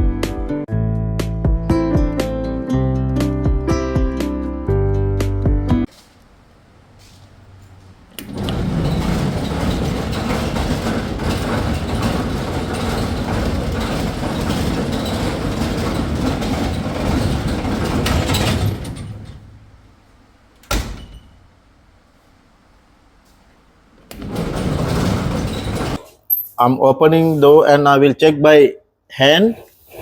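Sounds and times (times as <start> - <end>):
dryer drum loud noise: 6.8 - 21.9, 24.1 - 26.0.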